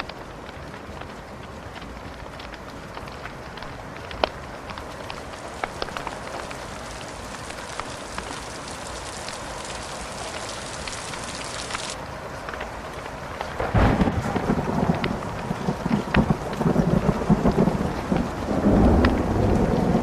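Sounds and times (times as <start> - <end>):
rain hiss: 0.0 - 20.0
sharp crackles: 0.0 - 20.0
thunderclap with deep rumble: 13.3 - 20.0.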